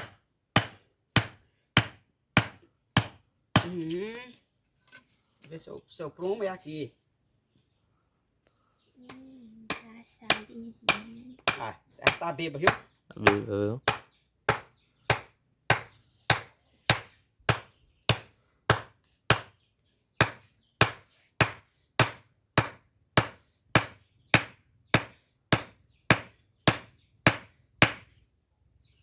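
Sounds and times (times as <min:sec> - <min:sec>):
tool striking wood: 0:00.0 - 0:03.8, 0:09.7 - 0:19.5, 0:20.2 - 0:28.1.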